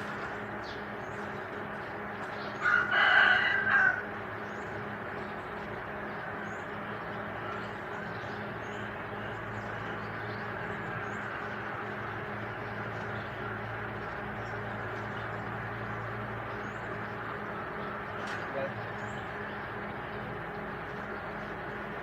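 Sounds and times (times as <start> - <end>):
low background hum: 0.0 - 22.0
rooster crowing: 2.6 - 4.2.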